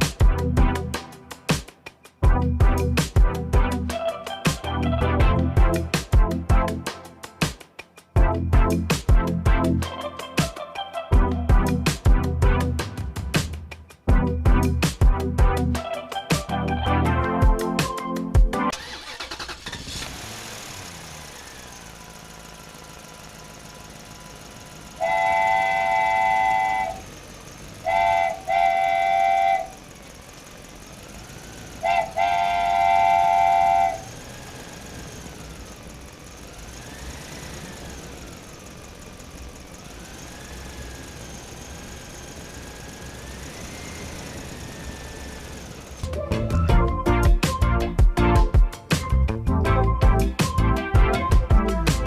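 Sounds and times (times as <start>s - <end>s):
cartoon engine hum: 2.2s - 6.8s, 21.4s - 49.0s
cartoon horn honking: 24.9s - 27.2s, 27.8s - 29.9s, 31.7s - 34.4s.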